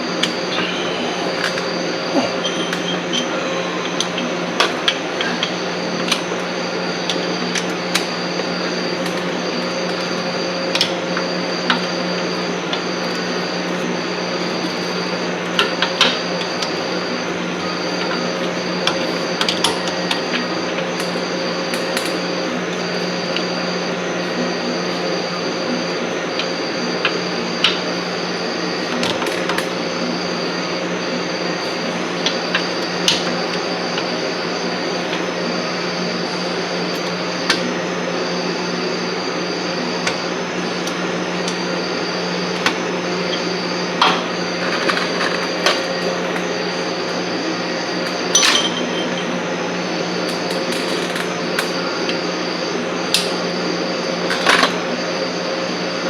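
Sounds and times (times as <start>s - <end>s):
steady hum: 0.0s - 56.0s.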